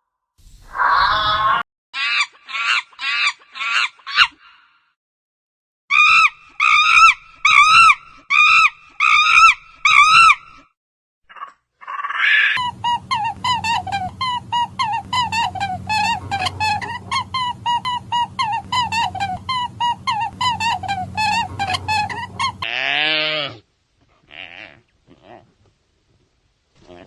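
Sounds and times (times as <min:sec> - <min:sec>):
animal calls: 0:11.3 - 0:23.6.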